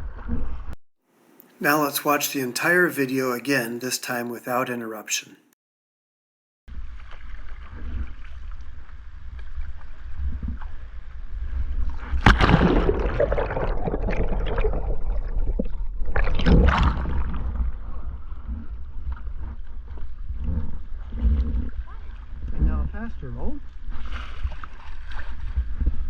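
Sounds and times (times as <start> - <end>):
water splashing around kayak: 6.8 - 26.0
big splashes: 12.2 - 18.2.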